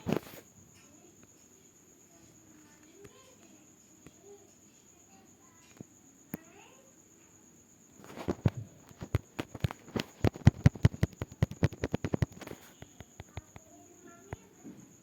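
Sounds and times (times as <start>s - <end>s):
rapid sharp clicks: 8.0s - 13.7s.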